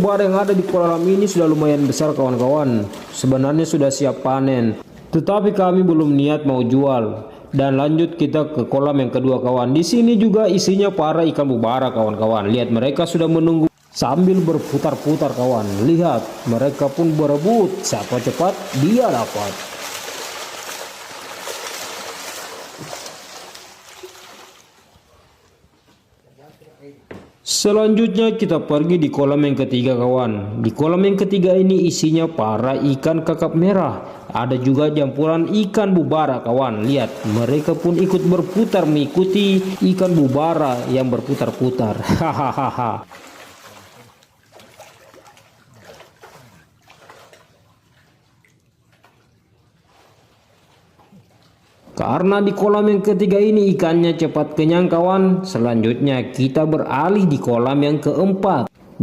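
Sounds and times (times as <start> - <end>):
fish splashing at water surface: 0.0 - 3.3, 14.4 - 25.1, 36.9 - 41.8, 43.0 - 49.3.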